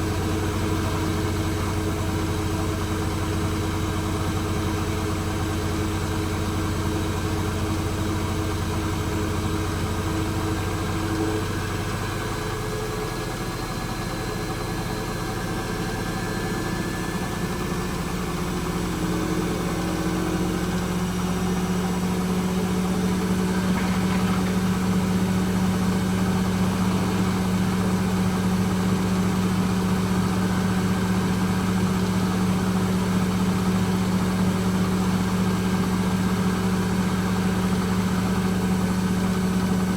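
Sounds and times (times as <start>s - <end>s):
washing machine spinning: 20.4s - 39.9s.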